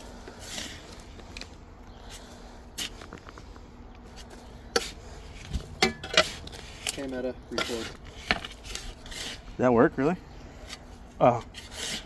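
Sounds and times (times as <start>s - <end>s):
sharp knocks and scrapes: 2.8s - 9.6s
low rumble: 5.0s - 8.7s.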